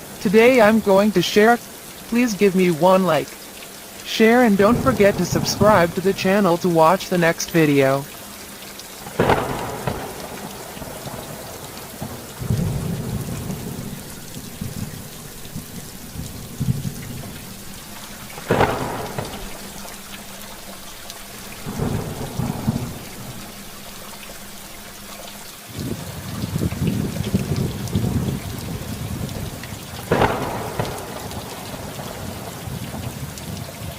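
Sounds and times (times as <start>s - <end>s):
rain hissing: 0.0s - 33.9s
sharp thunderclap: 9.0s - 20.2s, 21.5s - 23.6s, 25.8s - 33.9s
rolling thunder: 9.0s - 24.1s, 25.7s - 33.9s.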